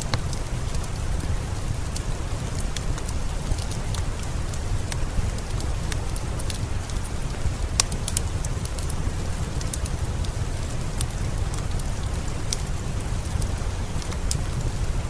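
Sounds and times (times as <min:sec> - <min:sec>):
steady rain: 0:00.0 - 0:15.0
wood fire crackling: 0:00.0 - 0:15.0.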